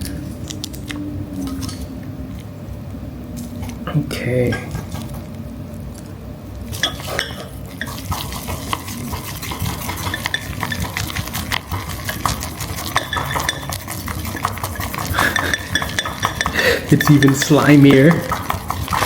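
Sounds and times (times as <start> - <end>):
utensil stirring in a bowl: 4.5 - 19.0.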